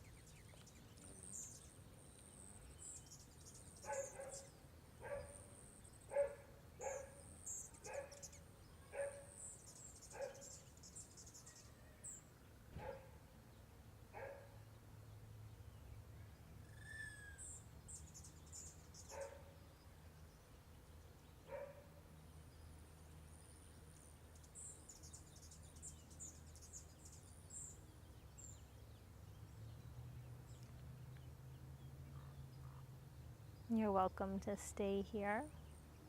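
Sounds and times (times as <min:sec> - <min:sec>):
faint bird chirps and trills: 0:00.0 - 0:36.0
distant dog barking: 0:03.8 - 0:05.5, 0:06.1 - 0:07.2, 0:07.8 - 0:08.3, 0:08.9 - 0:09.4, 0:10.1 - 0:10.5, 0:12.8 - 0:13.2, 0:14.2 - 0:14.6, 0:19.1 - 0:19.5, 0:21.5 - 0:21.9.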